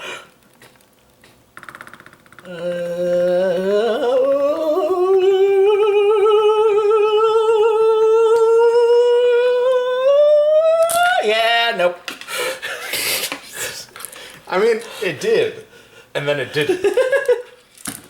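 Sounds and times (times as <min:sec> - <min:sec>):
person singing long note: 0:02.4 - 0:11.2.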